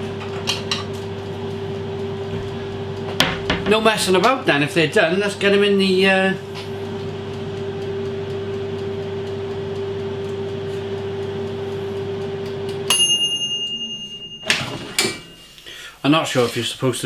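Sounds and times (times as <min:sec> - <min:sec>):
air fryer fan hum: 0:00.0 - 0:17.0
timer bell ding: 0:12.9 - 0:15.7.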